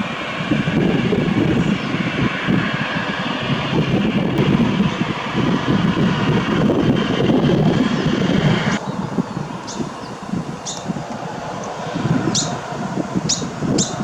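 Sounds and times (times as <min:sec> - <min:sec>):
jet engines at takeoff power: 0:00.0 - 0:14.0.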